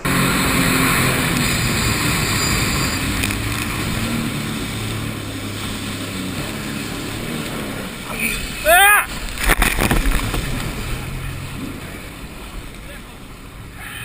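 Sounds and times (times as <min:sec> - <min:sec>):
wind noise on microphone: 0:00.0 - 0:07.7, 0:09.2 - 0:11.4
motorboat engine: 0:00.0 - 0:14.0
rushing water: 0:00.0 - 0:14.0.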